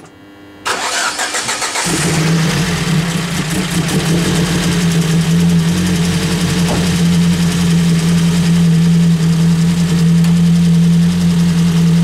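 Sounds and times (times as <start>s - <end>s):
car engine starter cranking: 0.7s - 2.3s
car engine idling: 0.7s - 12.0s.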